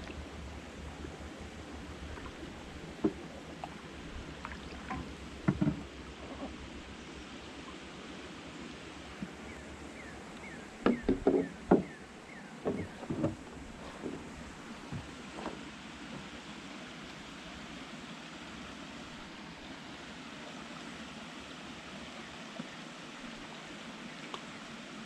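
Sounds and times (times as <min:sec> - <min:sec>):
low steady rumble: 0:00.0 - 0:25.0
knocks of gear in a boat: 0:04.9 - 0:06.6, 0:10.8 - 0:12.0, 0:12.6 - 0:16.3.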